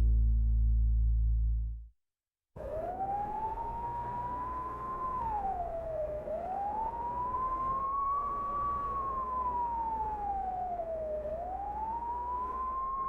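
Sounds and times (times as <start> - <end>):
rising and falling wailing tone: 2.6 - 13.0.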